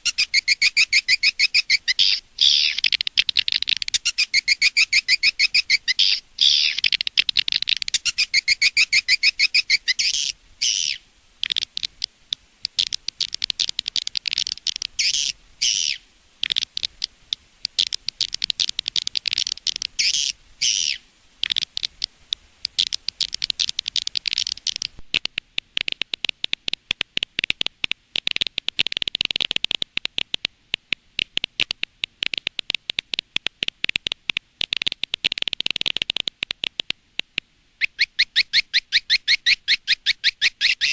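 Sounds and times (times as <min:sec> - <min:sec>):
bird twittering chirps: 0:00.0 - 0:17.1, 0:17.7 - 0:25.0, 0:37.8 - 0:40.9.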